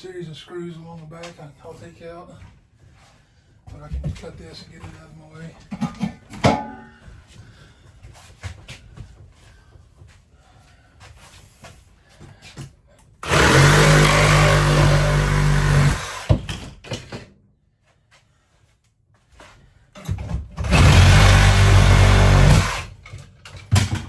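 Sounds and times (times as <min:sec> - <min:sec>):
power tool cutting wall material: 0:13.2 - 0:16.6, 0:20.6 - 0:23.0.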